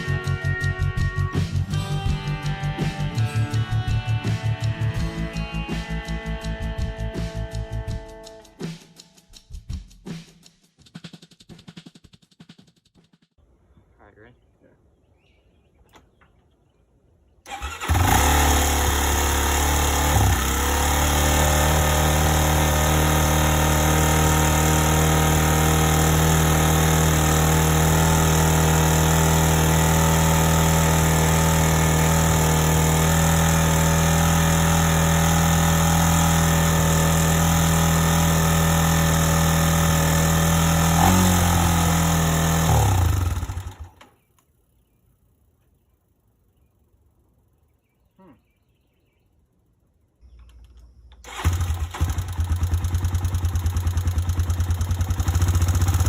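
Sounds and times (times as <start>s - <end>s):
atv engine running: 0.0s - 8.2s, 17.5s - 44.1s, 50.5s - 56.0s.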